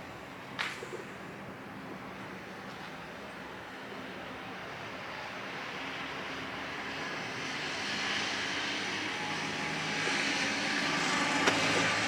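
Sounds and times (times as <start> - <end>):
engine drone: 7.5 - 12.0.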